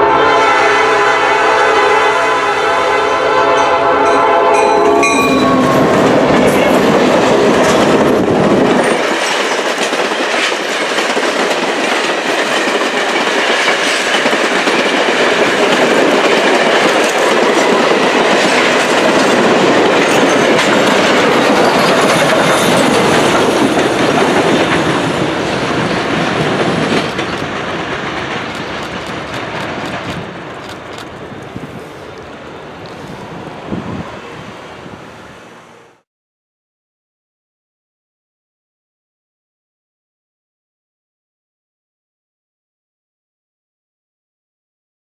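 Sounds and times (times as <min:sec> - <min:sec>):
train chime whistle: 0:00.0 - 0:07.0
train wheels clattering on rails: 0:04.7 - 0:33.2.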